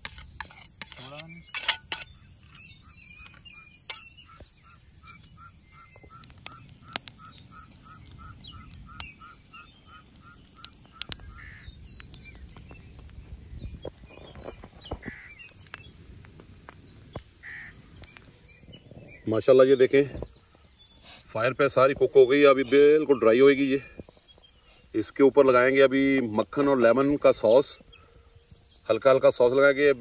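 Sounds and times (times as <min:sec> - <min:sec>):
other birds chirping: 0:00.0 - 0:30.0
bird calling repeated short notes: 0:03.2 - 0:11.7.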